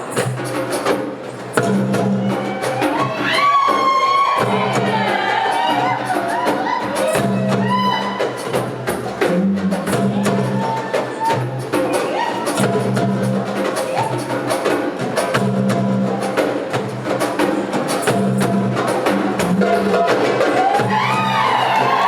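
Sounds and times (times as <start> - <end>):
hand drums playing fast rhythm: 0.0 - 22.0
music with repeating bass: 1.6 - 3.2, 4.4 - 6.0, 7.0 - 11.6, 12.5 - 14.4, 15.0 - 22.0.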